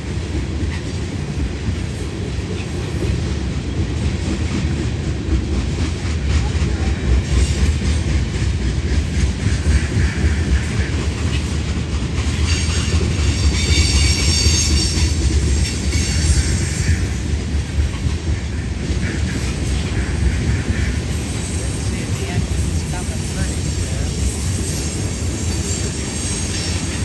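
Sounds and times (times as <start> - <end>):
freight train rumbling past: 0.0 - 27.0
train wheel squeal: 8.9 - 27.0.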